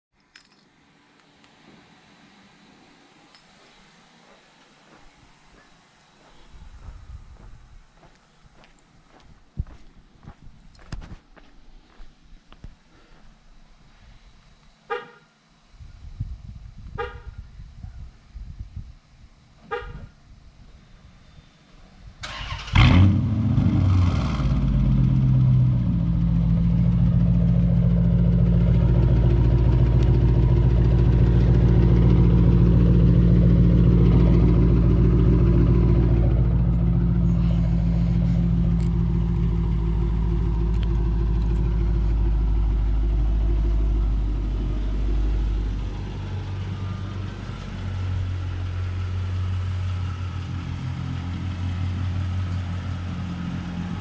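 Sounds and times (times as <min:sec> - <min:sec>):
car engine idling loudly: 0:25.8 - 0:50.5.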